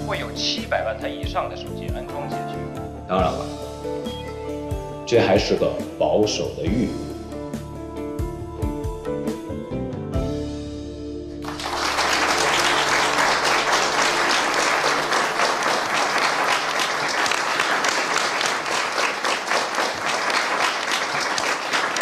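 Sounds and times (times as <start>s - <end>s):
background music held notes: 0.0s - 19.0s
audience applauding: 11.4s - 22.0s.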